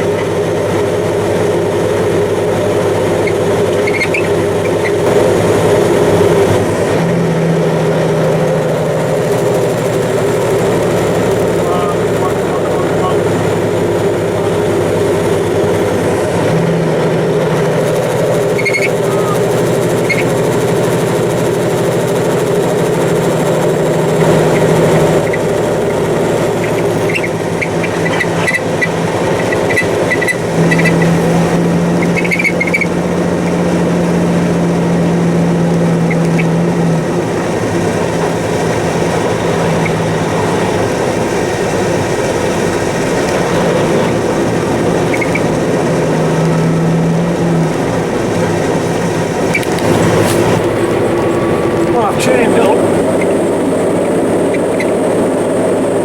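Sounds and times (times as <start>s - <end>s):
truck engine droning: 0.0s - 56.0s.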